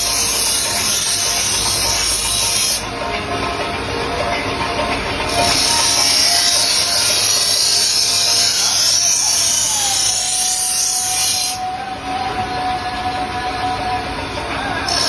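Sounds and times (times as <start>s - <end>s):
blade scraping on abrasive: 0.0s - 3.3s, 4.8s - 11.8s
steady whine: 0.0s - 15.0s.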